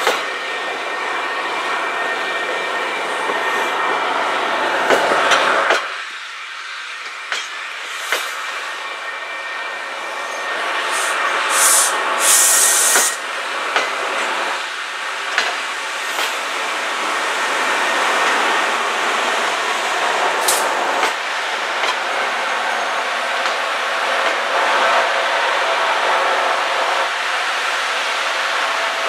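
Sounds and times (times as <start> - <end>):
train wheels rushing on rail: 0.0 - 29.0
short high hisses: 10.2 - 13.2.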